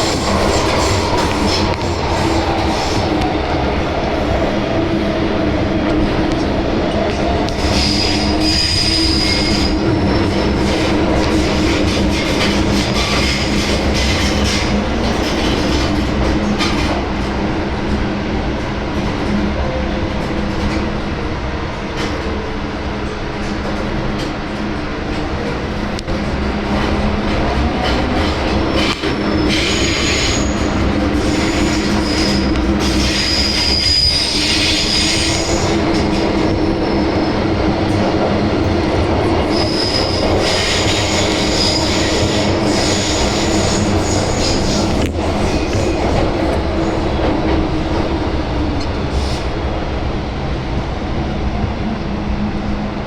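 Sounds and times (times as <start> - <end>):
wheel and rail rumble: 0.0 - 53.0
high-pitched wheel squeal: 7.7 - 9.8, 29.3 - 35.6.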